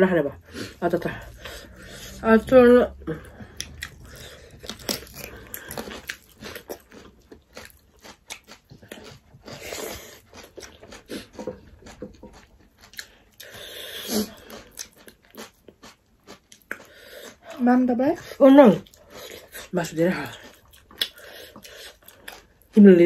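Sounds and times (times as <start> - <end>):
crunchy biting and chewing: 3.4 - 17.4.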